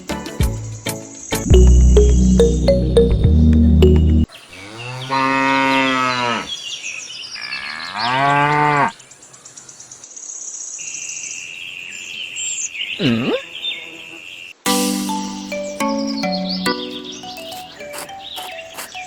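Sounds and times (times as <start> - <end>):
background music: 0.0 - 4.3, 14.7 - 19.0
cow mooing: 4.6 - 6.5
high chirping of birds or insects: 5.9 - 8.3, 8.9 - 19.0.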